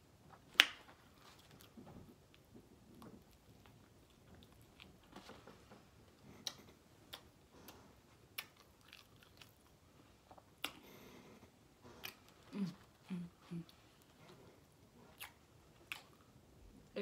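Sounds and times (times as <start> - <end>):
person chewing food: 1.1 - 5.2, 6.2 - 16.4.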